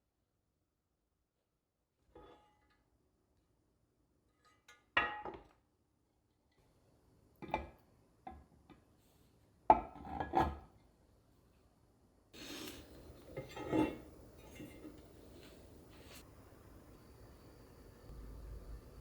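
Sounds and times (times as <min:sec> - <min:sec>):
kitchenware knocks and clinks: 0:12.6 - 0:15.2.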